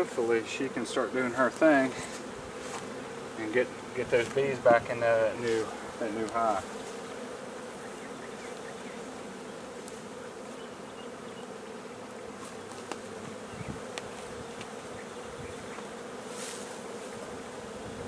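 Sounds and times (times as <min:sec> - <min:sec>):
honeybee swarm buzzing: 0:00.0 - 0:18.0
faint ticks: 0:13.9 - 0:14.7.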